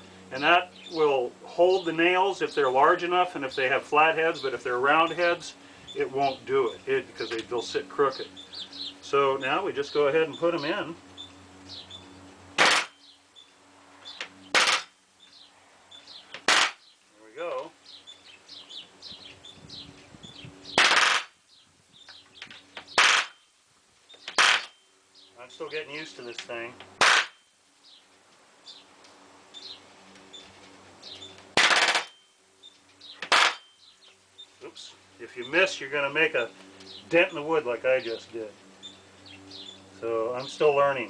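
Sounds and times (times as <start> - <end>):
palm nailer hammering nails: 12.6 - 13.0, 14.5 - 15.0, 16.3 - 16.9, 20.8 - 21.4, 22.8 - 23.4, 24.2 - 24.8, 27.0 - 27.4, 31.6 - 32.2, 33.2 - 33.7.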